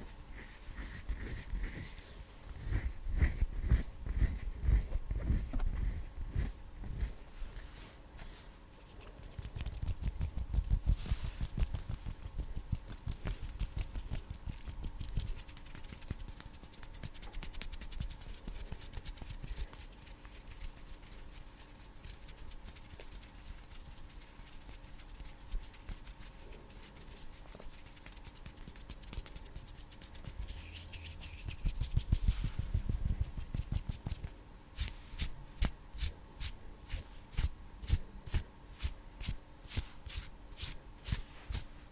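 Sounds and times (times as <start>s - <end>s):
hands rubbing together: 9.2s - 35.7s.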